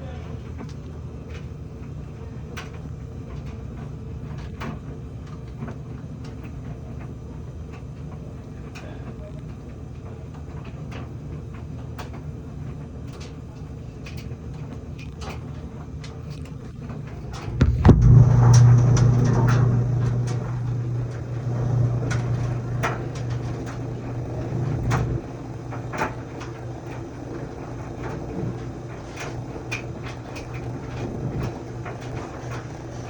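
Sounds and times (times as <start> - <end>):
clothes dryer humming: 0.0 - 33.0
loud low-pitched buzz: 17.2 - 33.0.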